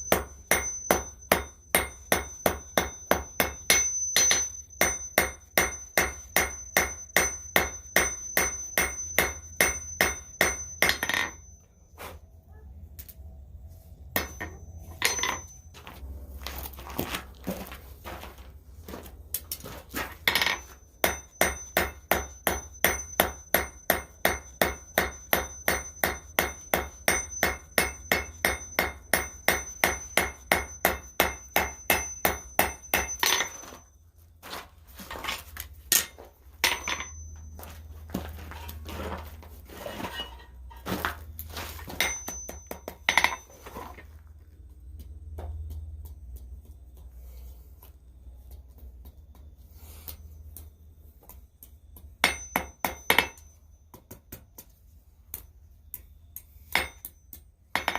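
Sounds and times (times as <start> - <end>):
hammer striking steel on anvil: 0.0 - 11.6, 14.1 - 15.9, 20.2 - 33.9, 35.9 - 38.5, 41.9 - 43.6, 52.2 - 56.1, 56.7 - 57.9.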